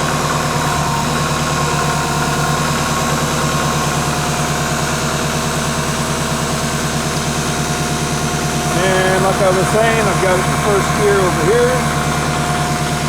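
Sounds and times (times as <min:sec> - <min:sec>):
faint hydraulic whine: 0:00.0 - 0:07.2
diesel engine idling: 0:00.0 - 0:13.0.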